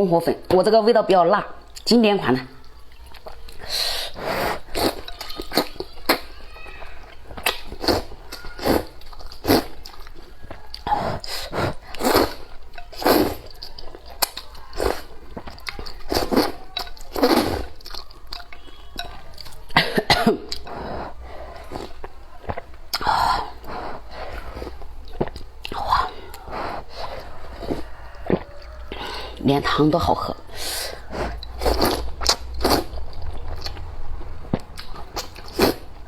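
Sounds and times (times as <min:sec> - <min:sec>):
mouth sounds while eating: 0:01.6 - 0:36.0.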